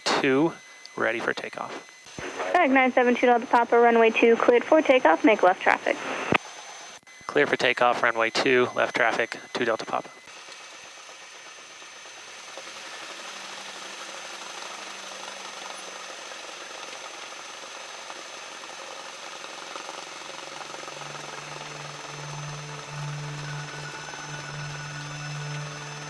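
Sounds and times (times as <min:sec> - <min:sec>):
light aircraft engine drone: 0:07.3 - 0:26.0
deep hum: 0:20.3 - 0:26.0.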